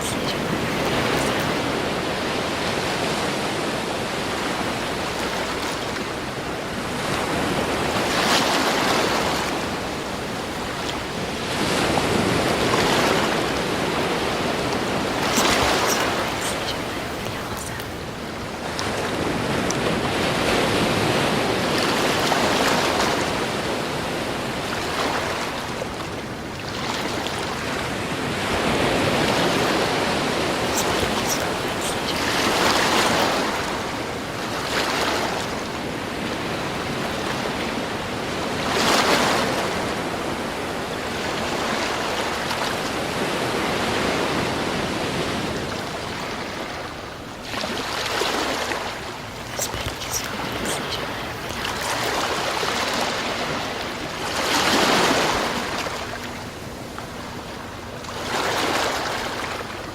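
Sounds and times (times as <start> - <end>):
ocean waves breaking on shore: 0.0 - 59.9.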